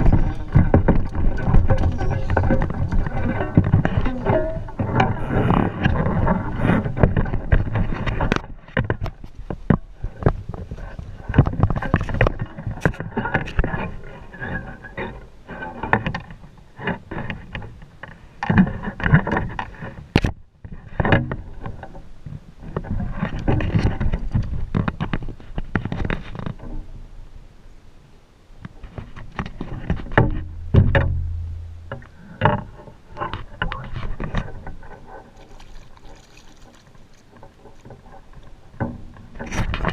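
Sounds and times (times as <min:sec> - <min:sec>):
knocking and rattling: 0:00.0 - 0:10.4, 0:28.9 - 0:39.9.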